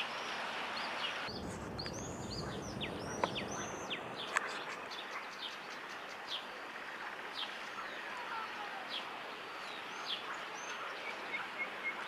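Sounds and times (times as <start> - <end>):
songbirds whistling: 0.0 - 6.4
steady outdoor hiss: 0.0 - 12.0.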